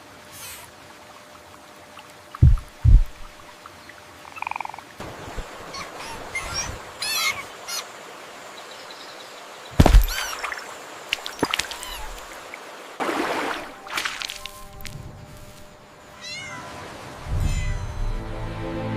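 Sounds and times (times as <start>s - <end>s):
deep thumps: 2.4s - 3.4s, 9.8s - 10.2s
high chirping animal calls: 5.7s - 7.9s.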